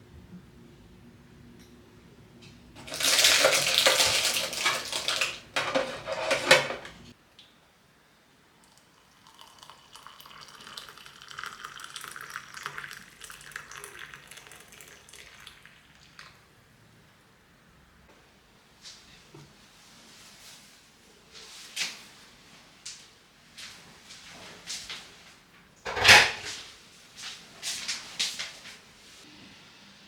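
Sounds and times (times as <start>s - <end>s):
tap water running into sink: 2.8s - 5.8s.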